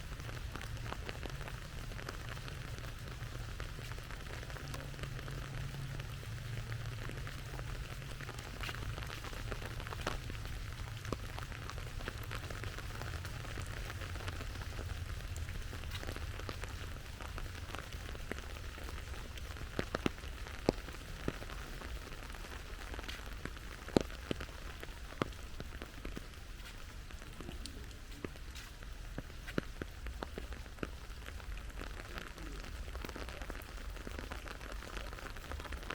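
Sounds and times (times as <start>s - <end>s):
steady rainfall: 0.0s - 35.9s.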